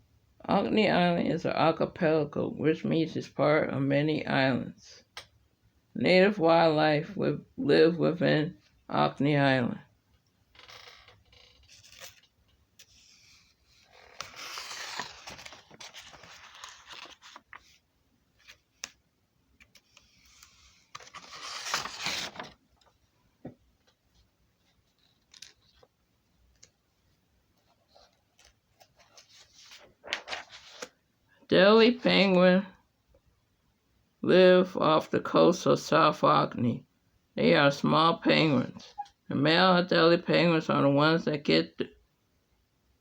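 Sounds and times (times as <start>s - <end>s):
rustling and scraping handling noise: 10.6s - 19.0s, 19.6s - 26.0s, 27.5s - 31.0s.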